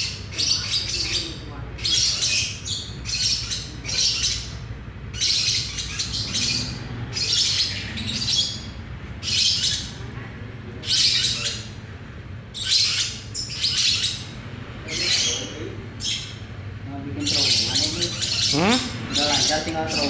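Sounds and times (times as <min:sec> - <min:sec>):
bird chirping: 0:17.2 - 0:20.0.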